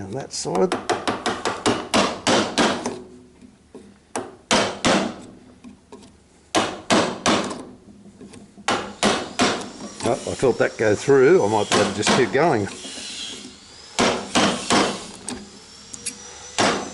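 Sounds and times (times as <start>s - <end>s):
mallet striking chisel into wood: 0.6s - 3.0s, 4.2s - 5.3s, 6.5s - 7.7s, 8.6s - 9.7s, 11.7s - 13.0s, 14.0s - 15.0s, 16.6s - 16.8s.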